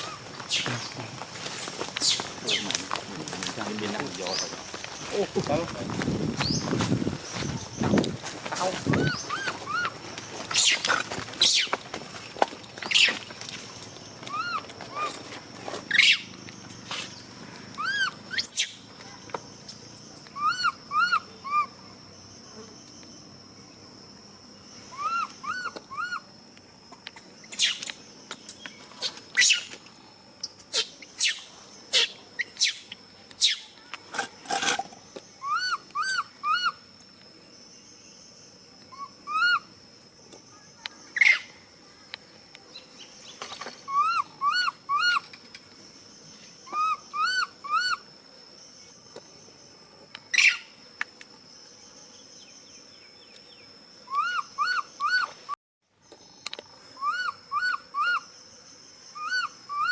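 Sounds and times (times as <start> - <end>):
monkeys calling: 8.8 - 10.0, 14.3 - 15.2, 20.4 - 21.7, 25.0 - 26.2, 35.4 - 36.8, 43.9 - 45.2, 46.7 - 48.0, 54.1 - 55.3, 57.0 - 58.2.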